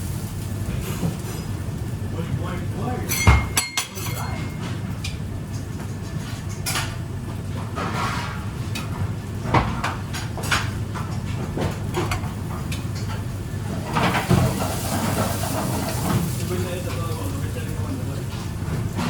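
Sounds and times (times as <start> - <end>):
dishes knocking and clinking: 3.1 - 4.8.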